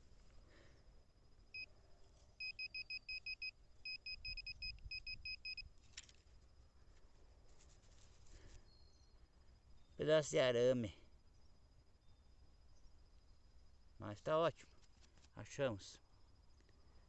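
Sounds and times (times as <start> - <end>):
metal detector pinpointer beeping: 2.4 - 5.7.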